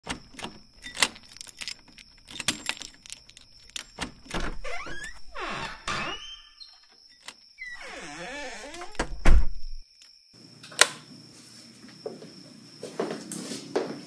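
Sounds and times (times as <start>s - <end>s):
door creaking open: 0.0s - 9.8s
keys jangling: 0.1s - 4.6s.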